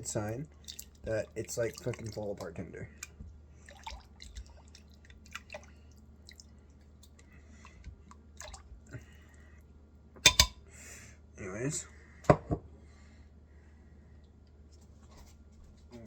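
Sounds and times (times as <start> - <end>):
faint liquid drips: 0.0 - 9.7.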